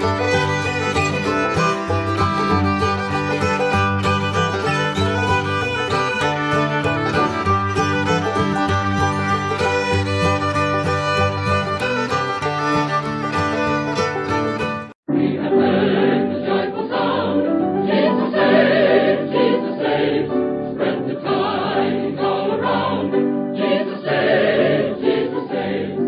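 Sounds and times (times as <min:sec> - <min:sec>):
brief fiddle tune: 0:00.0 - 0:15.0
choir singing a hymn: 0:15.1 - 0:26.0.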